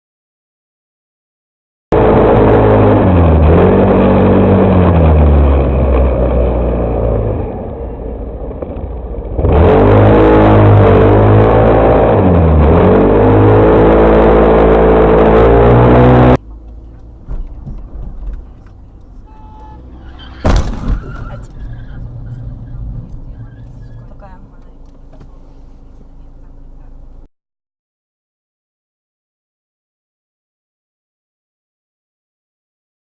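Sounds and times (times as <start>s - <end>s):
vehicle engine revving: 1.9s - 27.3s.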